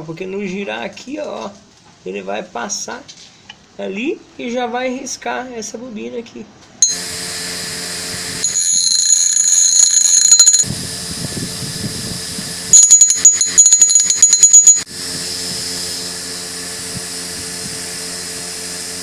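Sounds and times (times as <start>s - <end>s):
metal grinding whine: 6.8s - 7.2s, 8.3s - 10.8s.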